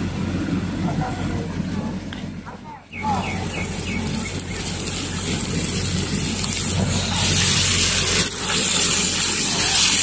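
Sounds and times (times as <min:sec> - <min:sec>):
food sizzling in hot oil: 0:03.7 - 0:10.0.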